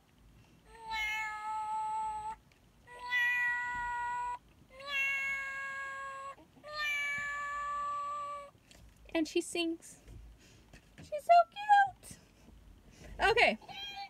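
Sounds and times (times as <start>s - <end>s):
toy kitten electronic meowing: 0.7s - 8.5s.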